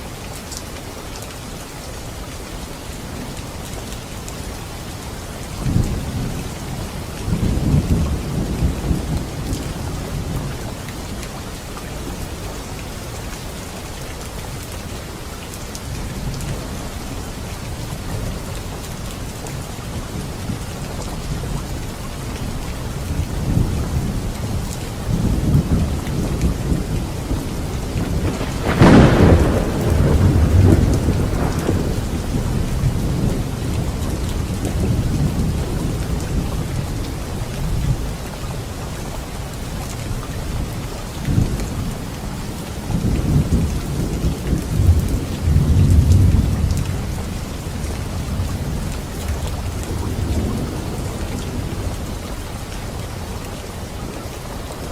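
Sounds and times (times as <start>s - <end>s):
rain hissing: 14.7s - 40.2s
thunder rumbling: 22.5s - 38.1s, 42.7s - 52.2s
loud thunderclap: 25.1s - 36.2s, 42.9s - 46.9s.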